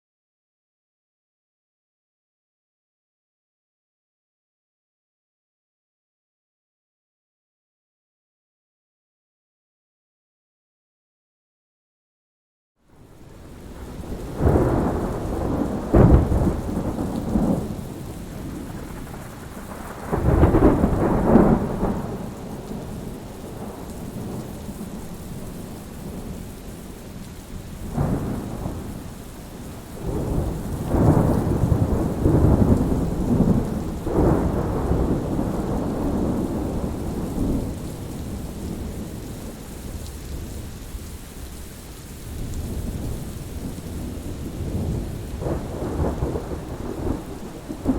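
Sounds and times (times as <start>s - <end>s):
steady rain: 12.8s - 47.9s
thunder rolling: 13.4s - 26.4s, 27.8s - 40.5s, 42.5s - 47.9s.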